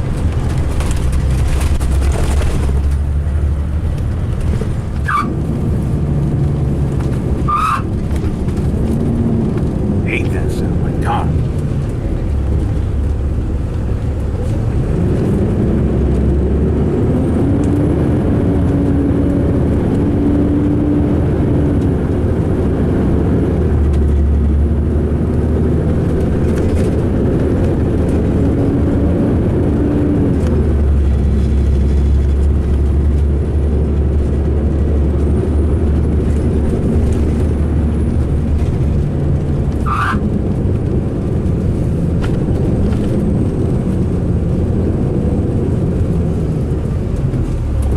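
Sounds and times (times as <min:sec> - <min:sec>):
diesel coach engine rumbling: 0:00.0 - 0:47.9
brief squeak: 0:05.0 - 0:05.3, 0:39.9 - 0:40.2.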